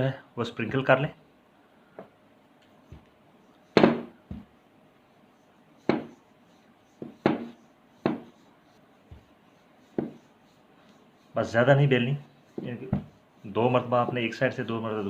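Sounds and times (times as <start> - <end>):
rolling pin knocking on board: 3.7 - 4.5, 5.8 - 6.1, 7.0 - 8.4, 9.9 - 10.2, 12.6 - 13.2.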